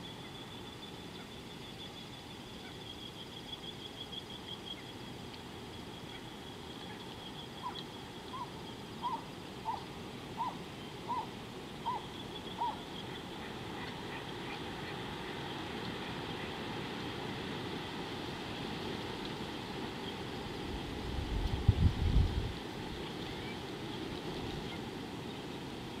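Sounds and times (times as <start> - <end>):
bird hooting: 7.6 - 15.0.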